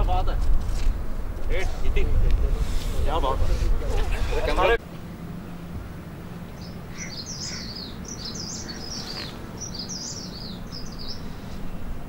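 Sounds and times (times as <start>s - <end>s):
small songbird chirping: 6.4s - 11.8s.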